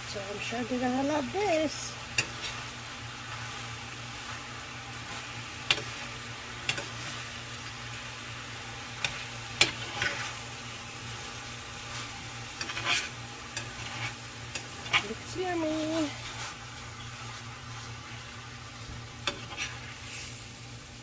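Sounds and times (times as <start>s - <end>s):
meat and rice sizzling in pan: 0.0s - 21.0s
utensil scraping pan: 9.0s - 16.6s, 19.2s - 20.4s.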